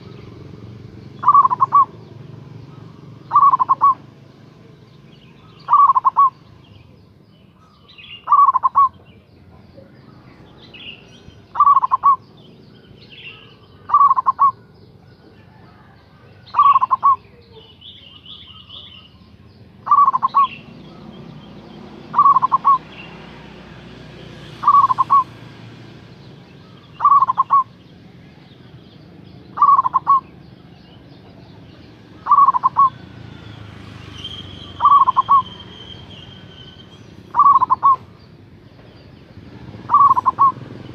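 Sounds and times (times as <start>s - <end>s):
dove cooing: 0.0s - 4.2s, 5.4s - 6.4s, 8.2s - 9.2s, 10.9s - 19.2s, 19.8s - 23.4s, 24.5s - 25.4s, 26.6s - 27.8s, 29.4s - 33.3s, 34.6s - 35.8s, 37.3s - 38.1s, 39.7s - 40.9s.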